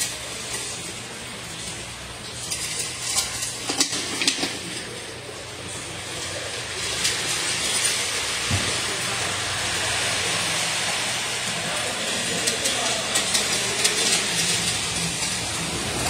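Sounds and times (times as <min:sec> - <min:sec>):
steady rain hiss: 0:04.2 - 0:16.0.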